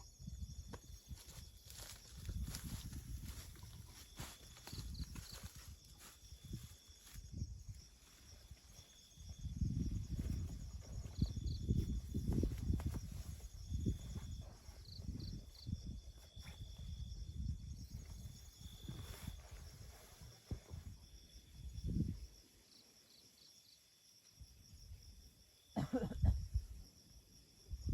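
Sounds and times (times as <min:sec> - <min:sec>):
insect chirps: 0:00.0 - 0:27.9
insects trilling: 0:00.0 - 0:27.9.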